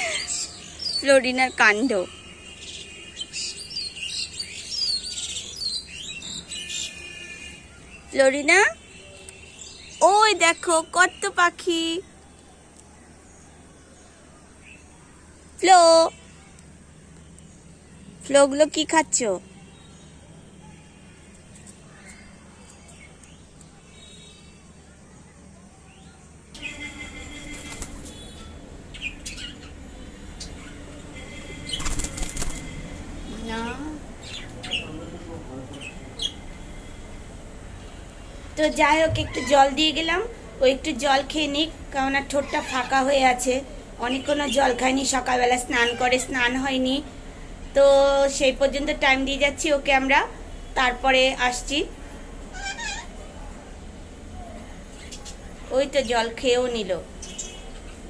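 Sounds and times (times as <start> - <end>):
birds chirping and twittering: 0.0 - 58.0
bird chirps: 26.0 - 35.1
bird wings flapping: 26.8 - 28.5, 31.3 - 33.0.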